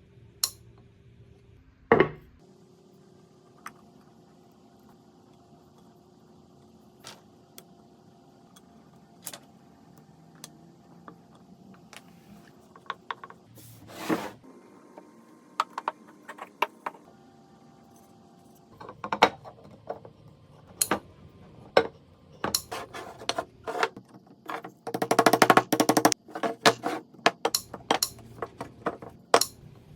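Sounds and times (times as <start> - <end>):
tools and wood clicking and knocking: 12.7 - 13.4, 18.7 - 20.2, 21.6 - 29.6.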